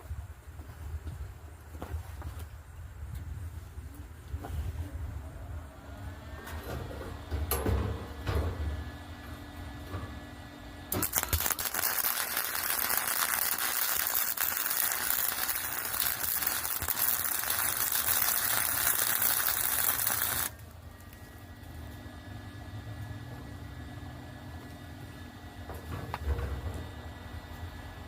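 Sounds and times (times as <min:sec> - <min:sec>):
welding arc crackling and sizzling: 0:10.9 - 0:21.1.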